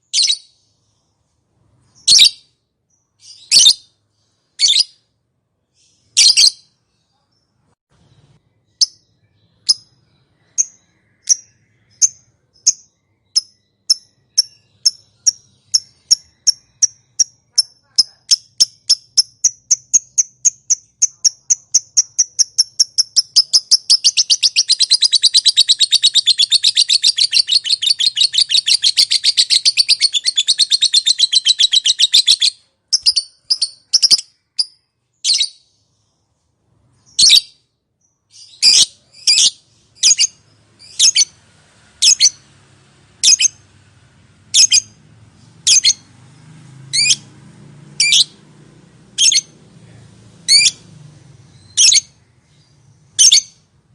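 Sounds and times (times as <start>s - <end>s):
lovebird chirps: 0.0s - 5.1s, 5.7s - 36.2s, 36.8s - 43.8s, 44.5s - 47.3s, 48.0s - 48.4s, 49.2s - 49.6s, 50.4s - 53.8s
lovebird chattering: 8.8s - 35.6s, 38.4s - 41.4s, 42.0s - 42.5s, 43.2s - 43.6s, 44.6s - 45.0s, 45.6s - 46.1s, 49.2s - 49.5s, 50.5s - 50.8s, 51.5s - 52.2s, 53.1s - 53.6s.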